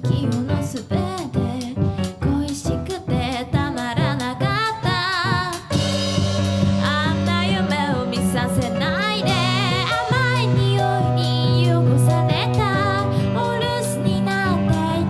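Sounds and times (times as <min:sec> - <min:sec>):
live band playing: 0:00.0 - 0:15.0
sharp drum hits: 0:05.7 - 0:13.4
person singing with vibrato: 0:06.8 - 0:15.0.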